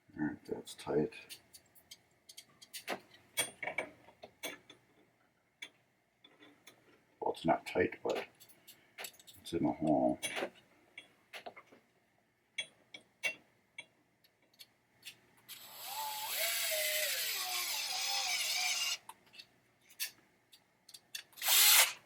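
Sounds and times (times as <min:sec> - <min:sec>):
small parts clicking and tapping: 0:01.3 - 0:05.0, 0:08.1 - 0:11.8, 0:12.6 - 0:15.6, 0:17.0 - 0:21.9
power drill driving a screw: 0:15.5 - 0:19.0, 0:21.4 - 0:22.0.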